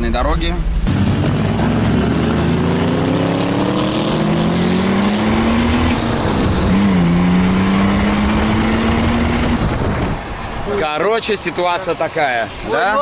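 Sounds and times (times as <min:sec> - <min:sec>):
car engine accelerating: 0:00.0 - 0:10.3
wind on microphone: 0:05.2 - 0:10.4.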